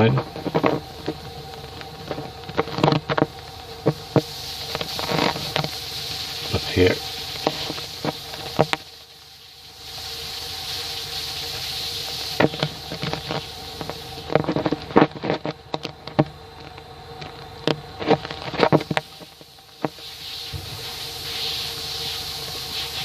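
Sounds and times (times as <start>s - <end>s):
air hissing through exhaust leak: 0.0s - 23.0s
steady hum: 0.0s - 23.0s.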